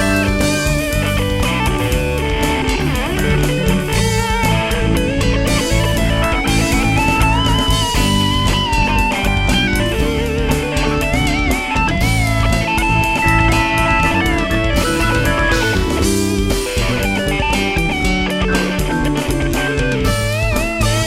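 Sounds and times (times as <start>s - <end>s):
bass guitar: 0.0s - 21.0s
drum kit: 0.0s - 21.0s
lead guitar bent notes: 0.0s - 21.0s.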